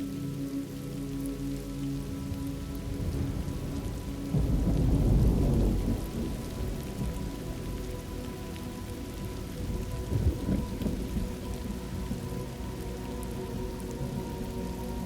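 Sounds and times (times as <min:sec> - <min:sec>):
steady rain: 0:00.0 - 0:15.0
thunder rolling: 0:02.6 - 0:07.4.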